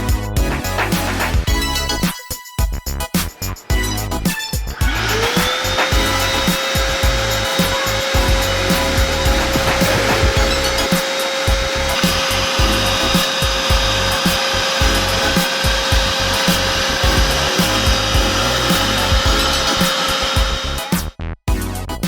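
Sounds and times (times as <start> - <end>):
vacuum cleaner running: 4.8 - 20.8.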